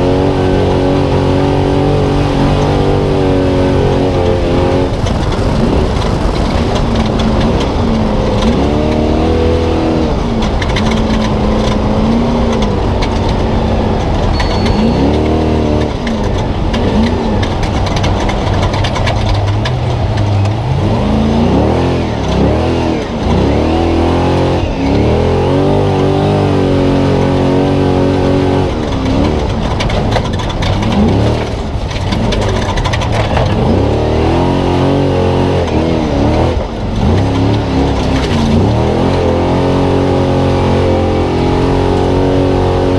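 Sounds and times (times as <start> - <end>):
truck engine revving: 0.0 - 42.9
rattling clatter: 2.5 - 20.9, 28.0 - 34.2.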